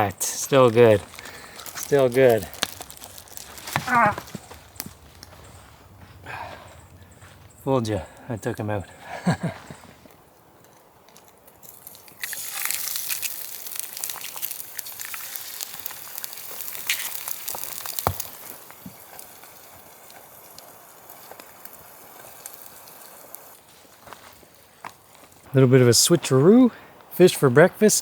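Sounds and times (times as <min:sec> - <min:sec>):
food sizzling in a frying pan: 0:11.7 - 0:23.6.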